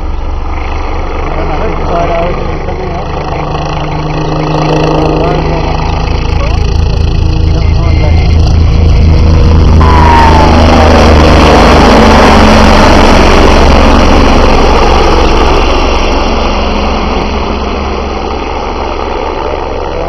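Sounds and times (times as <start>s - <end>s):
helicopter rotor and turbine: 0.0s - 20.0s.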